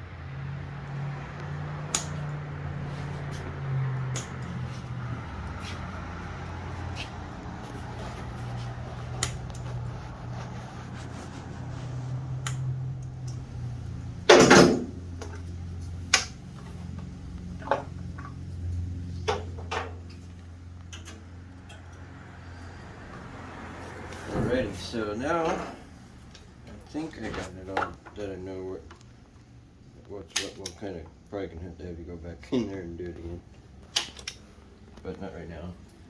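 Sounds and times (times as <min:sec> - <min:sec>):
hand tools clicking and knocking: 0:01.8 - 0:02.4.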